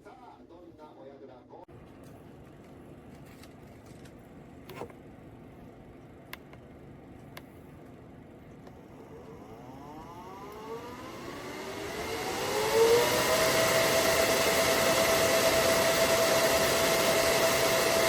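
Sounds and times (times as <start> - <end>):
fan spinning up with rising whine: 1.7 - 18.0
clicks: 6.2 - 9.4.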